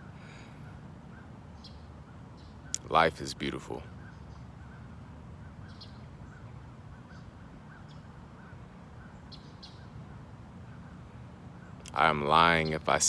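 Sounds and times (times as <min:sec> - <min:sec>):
bird chirping: 0:00.0 - 0:13.0
low outdoor rumble: 0:00.0 - 0:13.0.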